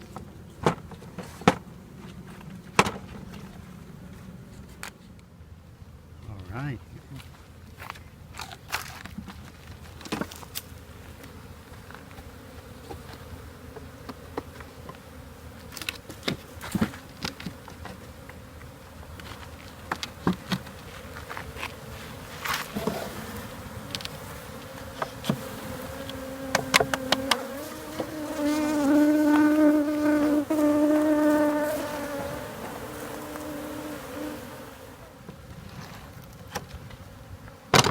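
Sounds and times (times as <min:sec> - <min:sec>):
bees buzzing: 0:09.6 - 0:37.9.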